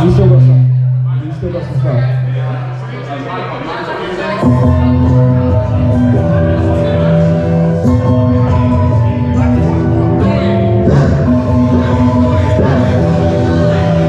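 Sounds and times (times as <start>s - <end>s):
hip-hop beat over loudspeakers: 0.0s - 14.0s.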